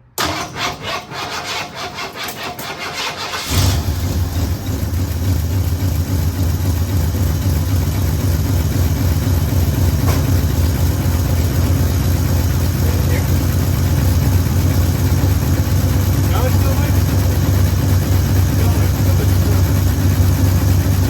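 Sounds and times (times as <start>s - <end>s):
engine cranking and starting: 0.2s - 5.6s
engine idling: 2.7s - 21.0s.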